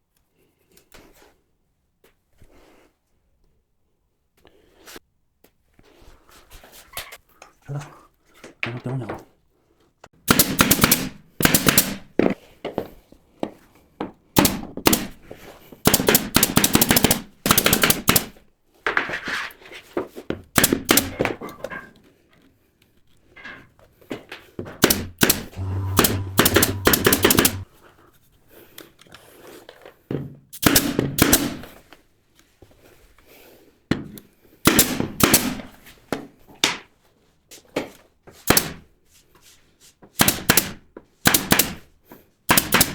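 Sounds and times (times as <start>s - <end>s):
pneumatic nail gun firing: 10.3s - 11.9s, 15.9s - 18.2s, 25.2s - 27.6s, 40.2s - 41.8s, 42.5s - 42.9s.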